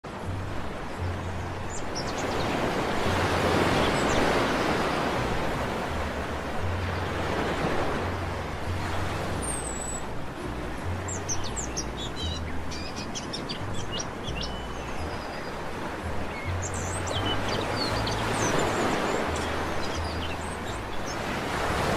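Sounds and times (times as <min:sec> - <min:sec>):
waves breaking on a beach: 0:00.1 - 0:21.9
small birds chirping: 0:00.9 - 0:05.2, 0:11.0 - 0:21.3.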